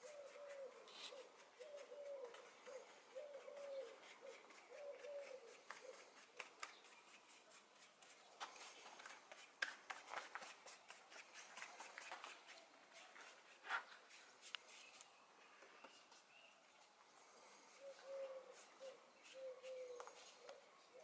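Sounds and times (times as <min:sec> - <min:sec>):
dove cooing: 0:00.0 - 0:06.4, 0:17.8 - 0:21.0.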